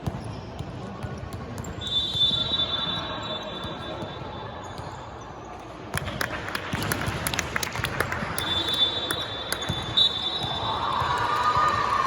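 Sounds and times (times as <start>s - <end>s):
basketball bouncing: 0.0s - 2.4s.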